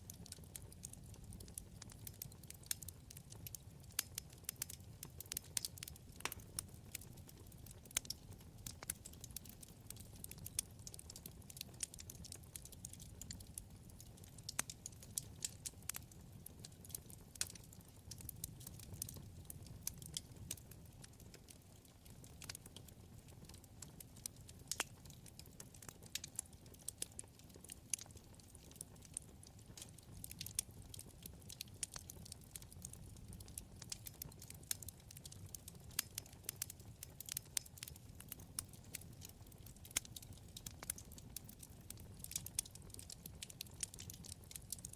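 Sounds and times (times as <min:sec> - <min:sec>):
low rumble of flames: 0:00.0 - 0:44.9
wood fire crackles and pops: 0:00.0 - 0:44.9.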